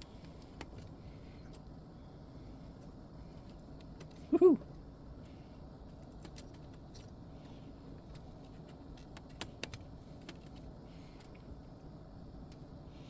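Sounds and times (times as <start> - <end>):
small parts clicking and tapping: 5.2 - 11.5.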